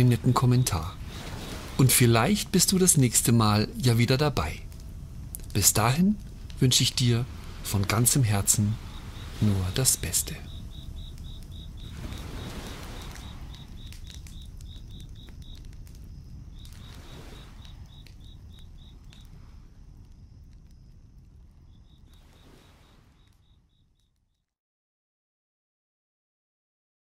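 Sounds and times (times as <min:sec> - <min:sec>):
soft rushing swells: 0:00.0 - 0:15.4, 0:16.3 - 0:18.2
low rumble: 0:00.0 - 0:21.7
campfire crackling: 0:00.0 - 0:24.4
crickets chirping: 0:00.0 - 0:24.4.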